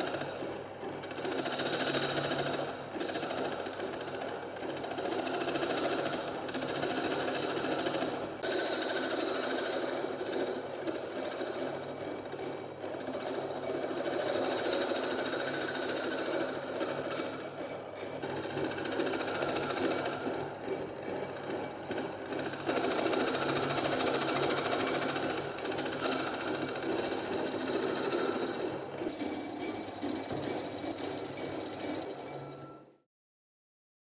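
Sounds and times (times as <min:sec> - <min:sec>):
key cutting machine chattering: 0:18.2 - 0:32.6.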